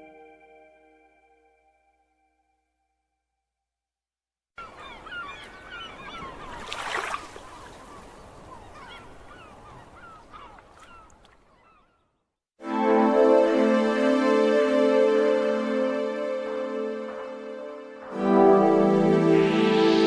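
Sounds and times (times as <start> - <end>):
flock of birds calling: 4.6 - 12.0.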